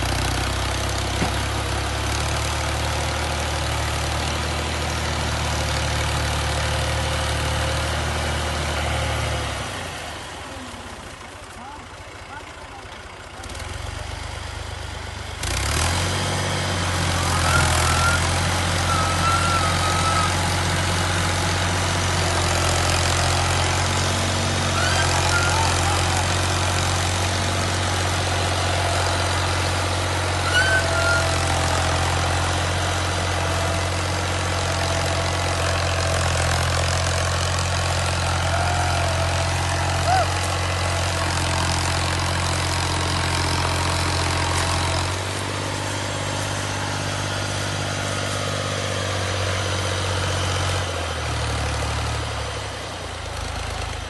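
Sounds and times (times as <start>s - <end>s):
diesel engine running: 0.0s - 54.0s
faint wavering high calls: 17.2s - 20.7s, 24.7s - 26.3s, 30.3s - 31.9s.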